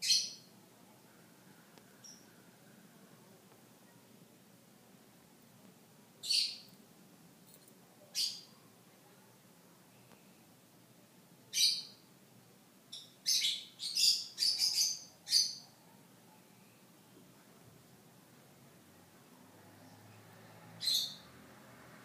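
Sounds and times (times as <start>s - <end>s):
birds chirping: 0.0s - 0.5s, 1.9s - 2.4s, 6.2s - 6.8s, 11.5s - 12.1s, 12.9s - 15.7s, 20.8s - 21.3s.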